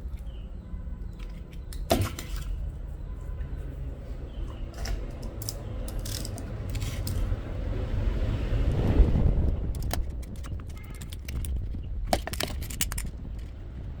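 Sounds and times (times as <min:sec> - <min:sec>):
low rumble: 0:02.6 - 0:14.0
clinks of small parts and tools: 0:05.2 - 0:07.3, 0:12.1 - 0:13.5.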